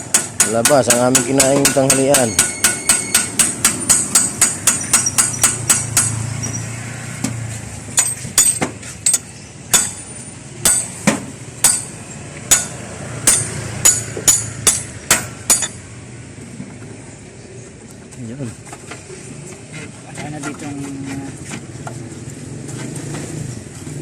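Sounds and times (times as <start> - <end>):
hammer striking metal: 0.0 - 6.6, 8.0 - 15.8.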